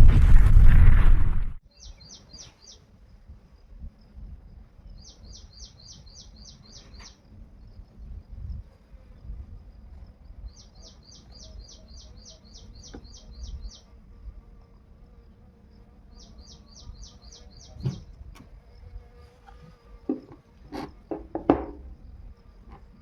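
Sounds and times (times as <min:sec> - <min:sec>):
low rumble: 0:00.0 - 0:01.6
bird chirping: 0:01.6 - 0:02.8, 0:04.8 - 0:08.2, 0:10.3 - 0:14.0, 0:16.1 - 0:18.2
sharp knocks: 0:17.8 - 0:18.1, 0:20.1 - 0:21.9.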